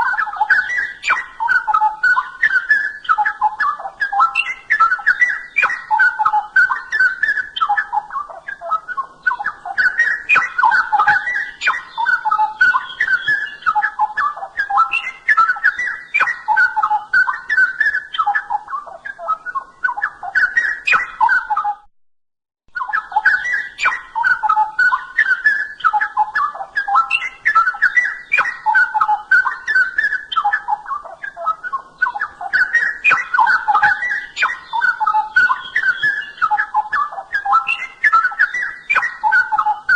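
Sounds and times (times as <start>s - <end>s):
bird singing warbling phrases: 0.0s - 21.9s, 22.7s - 39.9s.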